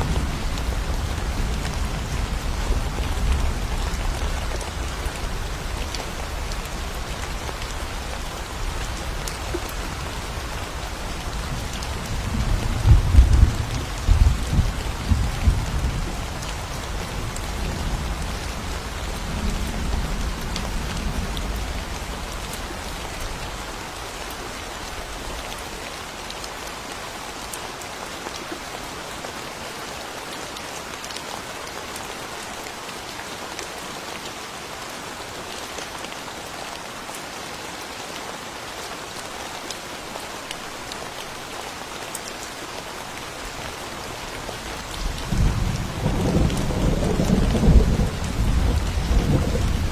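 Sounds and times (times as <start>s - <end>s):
heavy rain: 0.0s - 49.9s
thunder rumbling: 45.0s - 49.9s.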